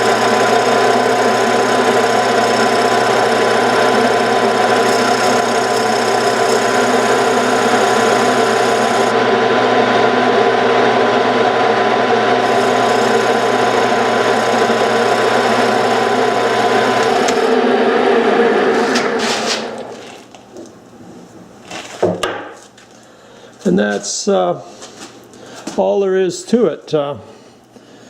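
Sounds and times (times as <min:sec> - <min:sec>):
lathe cutting wood: 0:00.0 - 0:20.3
motor hum: 0:00.0 - 0:20.8.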